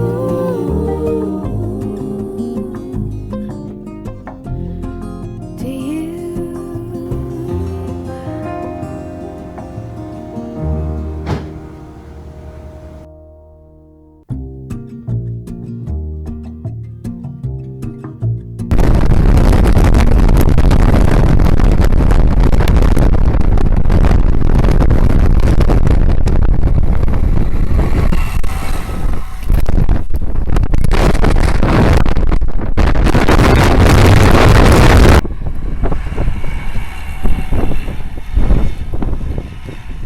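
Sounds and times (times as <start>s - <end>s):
diesel train passing: 0.0s - 13.1s, 27.2s - 29.5s, 35.2s - 40.0s.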